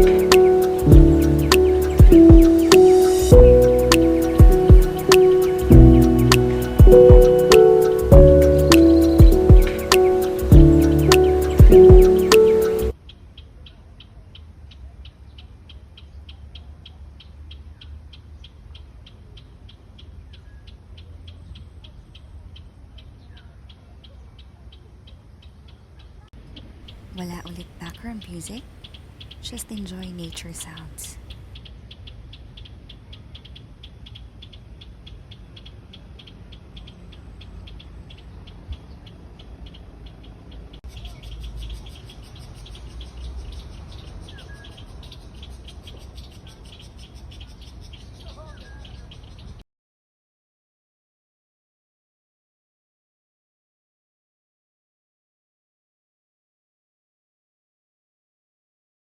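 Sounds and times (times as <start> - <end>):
low rumble: 5.6 - 7.3.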